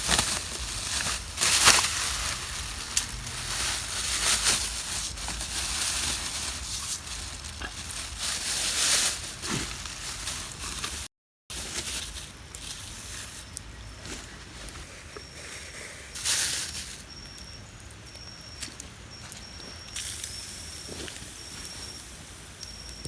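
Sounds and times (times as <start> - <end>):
meat sizzling on a grill: 0.0 - 10.9
fire crackling: 0.0 - 23.0.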